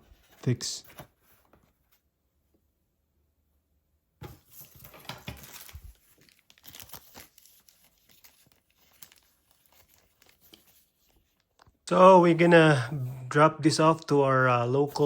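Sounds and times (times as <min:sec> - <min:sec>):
rustling and crinkling handling: 0:04.2 - 0:11.8.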